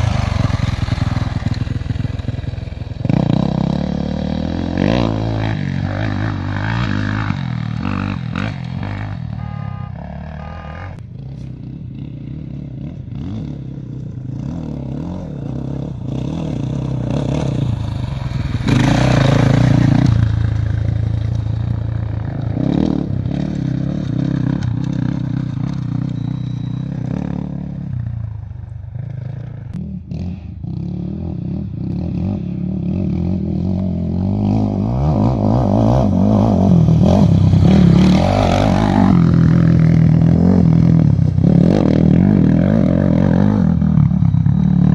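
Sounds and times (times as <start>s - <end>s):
engine running: 0.0s - 27.4s.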